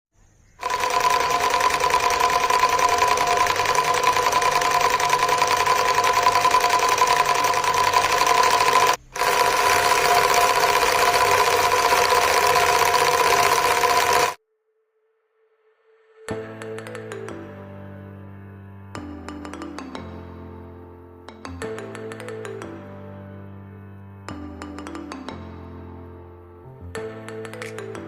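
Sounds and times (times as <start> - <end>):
small engine mechanical chatter: 0.6 - 14.4.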